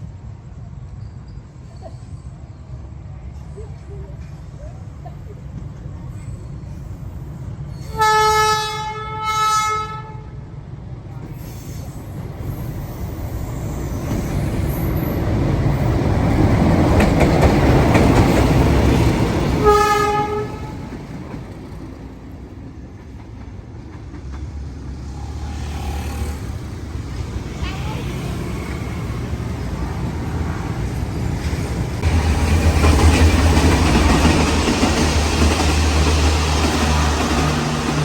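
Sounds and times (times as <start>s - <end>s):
train rumbling past: 0.0s - 38.0s
train horn blasts: 7.9s - 10.4s, 19.6s - 21.0s.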